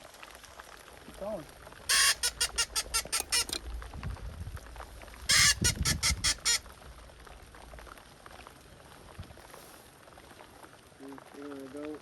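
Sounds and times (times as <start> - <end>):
duck call quacks: 1.9 - 3.6, 5.3 - 6.6.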